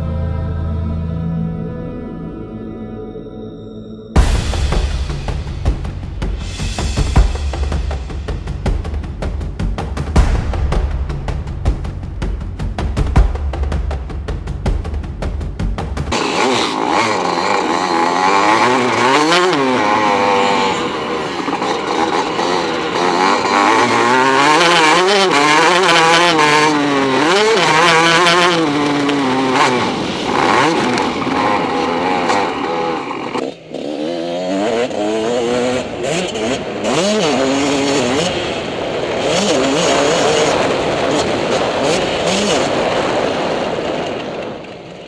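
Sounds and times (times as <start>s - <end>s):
music drumbeat: 4.2s - 16.2s
motocross bike engine revving: 4.2s - 44.7s.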